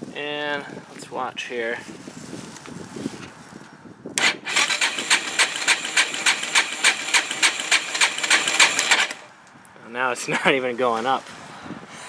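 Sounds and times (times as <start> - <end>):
engine cranking on electric starter: 4.2 - 9.3.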